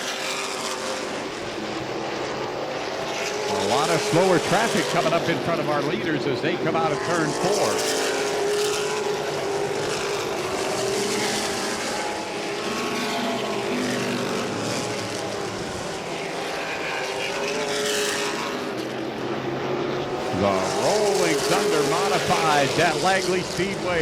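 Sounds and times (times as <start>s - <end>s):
race car engines passing: 0.0s - 24.0s.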